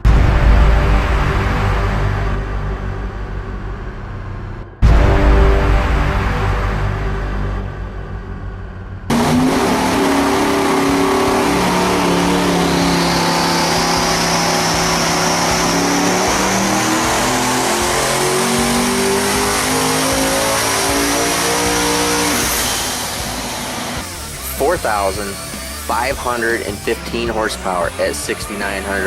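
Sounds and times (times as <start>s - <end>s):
turbo whine: 0.0s - 29.0s
car engine revving at full throttle: 9.0s - 29.0s.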